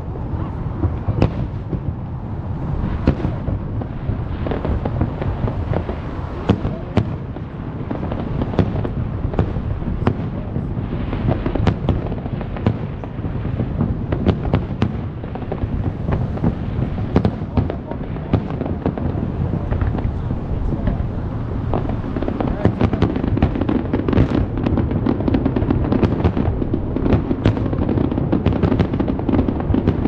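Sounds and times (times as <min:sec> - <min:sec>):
continuous low rumble: 0:00.0 - 0:30.0
fireworks bangs and crackles: 0:00.0 - 0:30.0.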